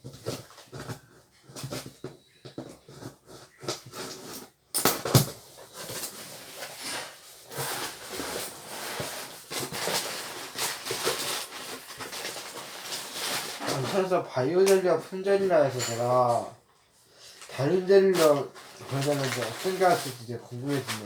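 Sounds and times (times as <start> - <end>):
wrapping rustling and crinkling: 0.0 - 16.5, 17.2 - 21.0
packaging tearing: 6.3 - 14.1, 18.2 - 21.0.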